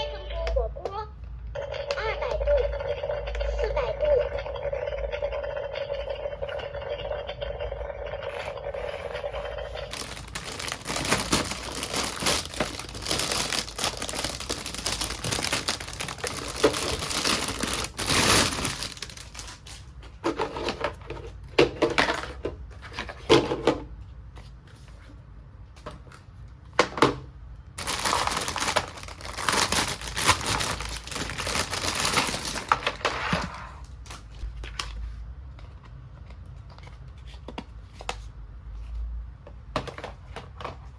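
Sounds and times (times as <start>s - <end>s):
packaging crinkling and tearing: 8.4s - 20.8s, 27.8s - 35.0s.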